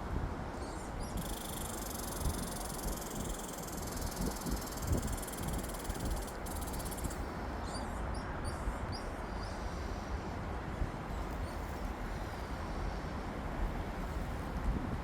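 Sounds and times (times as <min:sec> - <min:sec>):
wind buffeting microphone: 0:04.0 - 0:07.2.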